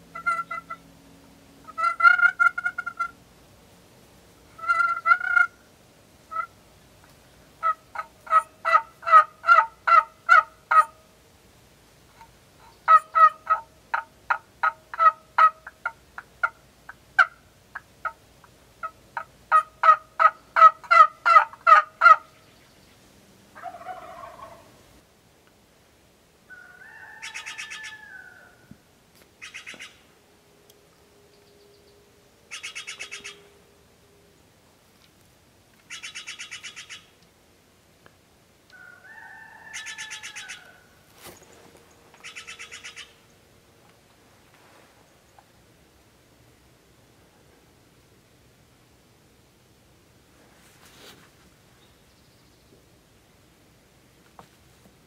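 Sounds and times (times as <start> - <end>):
wild turkey yelping: 0.1 - 0.8, 1.7 - 3.2, 4.6 - 5.6, 6.3 - 6.6, 7.6 - 11.0, 12.6 - 16.6, 18.8 - 22.4, 23.6 - 24.8, 26.5 - 28.7, 29.4 - 30.0, 32.5 - 33.5, 35.9 - 37.2, 38.7 - 40.9, 42.2 - 43.2.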